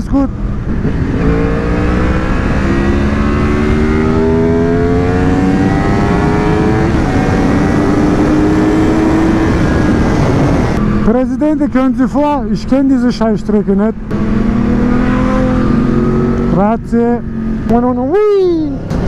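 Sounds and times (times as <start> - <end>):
motorcycle engine accelerating: 0.0 - 11.1, 14.0 - 18.1
wind rush: 0.3 - 11.1.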